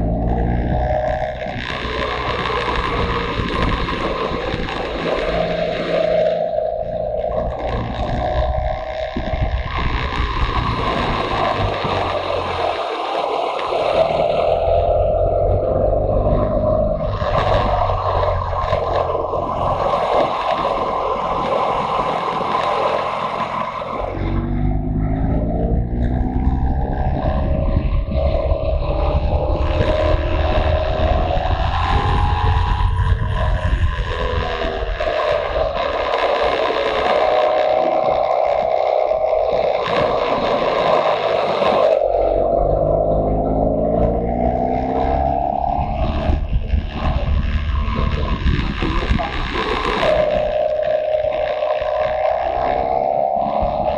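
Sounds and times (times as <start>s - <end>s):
motorcycle engine rumble: 0.0s - 53.9s
wind rush over microphone: 0.0s - 53.9s.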